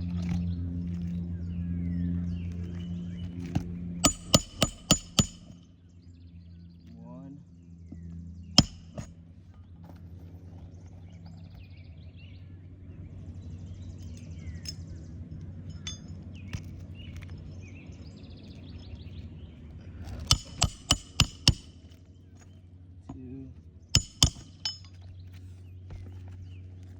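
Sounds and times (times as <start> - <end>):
steady low hum: 0.0 - 26.9
hammer blows on a nail: 4.0 - 5.6, 8.6 - 9.1, 20.3 - 21.8, 24.0 - 24.8.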